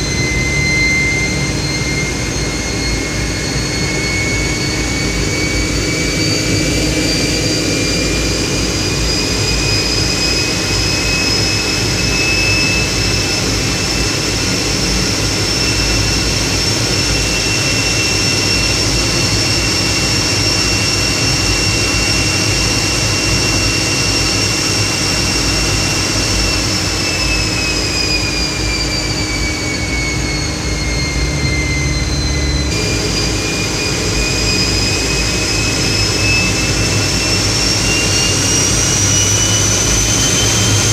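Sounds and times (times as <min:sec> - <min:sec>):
jet engine whine and rumble: 0:00.0 - 0:40.9.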